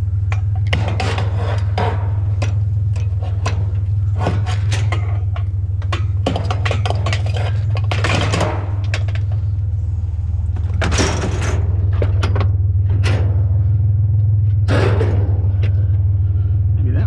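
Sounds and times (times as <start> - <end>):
steady low rumble: 0.0 - 17.0
scrap pieces clattering: 0.3 - 9.6.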